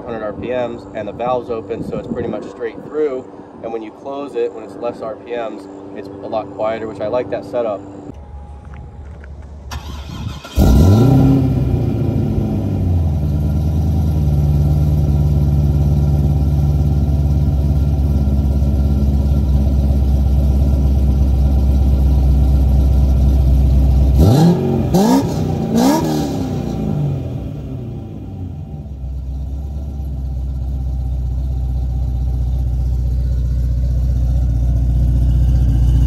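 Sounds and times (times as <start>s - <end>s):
car engine starting and idling: 5.7s - 36.0s
car engine revving: 9.7s - 36.0s.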